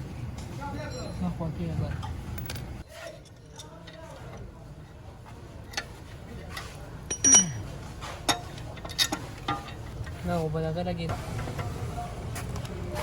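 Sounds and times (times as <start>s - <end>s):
metal tools clinking: 0.3s - 5.0s, 5.6s - 10.2s.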